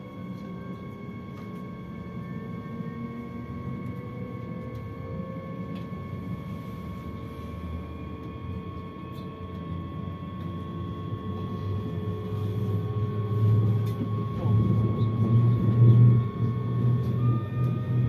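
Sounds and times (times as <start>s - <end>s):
steady high whine: 0.0s - 18.0s
train rumble inside carriage: 0.0s - 18.0s.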